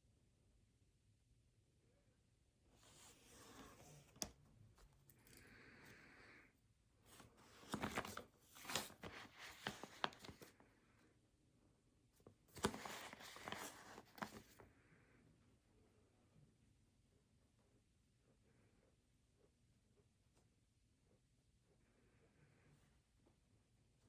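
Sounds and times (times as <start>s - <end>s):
paper rustling and crinkling: 7.1s - 10.6s, 12.5s - 14.6s.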